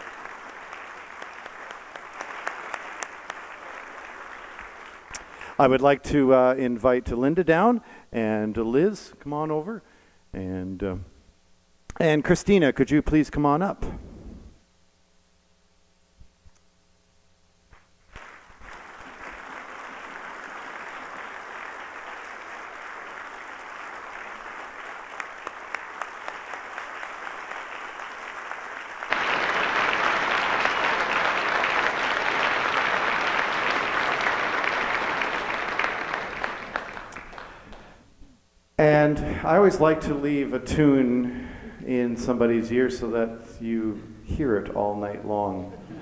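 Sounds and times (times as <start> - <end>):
audience applauding: 0.0 - 5.7, 18.1 - 38.0.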